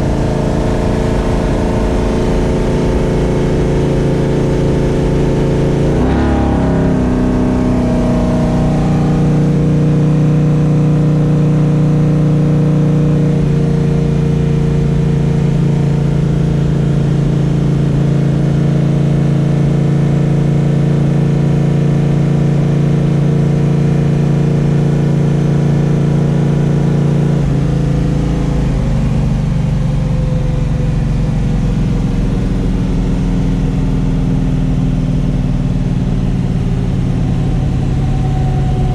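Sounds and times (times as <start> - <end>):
vee eight engine revving: 0.0 - 10.3.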